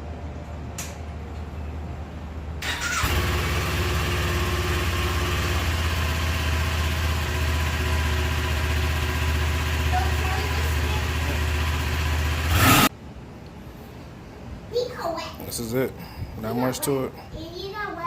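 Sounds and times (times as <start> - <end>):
motorcycle engine idling: 2.7 - 12.9.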